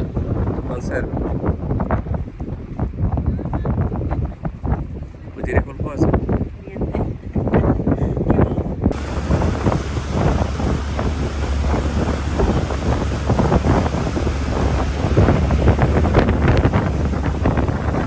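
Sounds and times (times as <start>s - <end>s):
wind buffeting microphone: 0.0s - 18.0s
steady low rumble: 8.9s - 18.0s.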